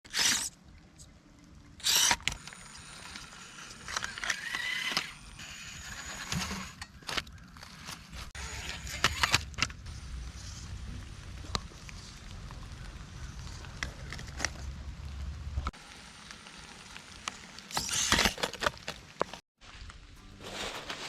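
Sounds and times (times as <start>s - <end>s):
toy car motor whining: 0.1s - 0.5s, 1.8s - 6.9s, 8.4s - 9.5s.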